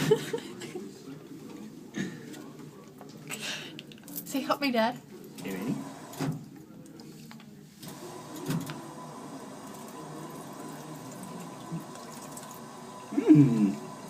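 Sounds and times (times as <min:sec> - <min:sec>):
drinking fountain water splashing: 0:09.0 - 0:14.0.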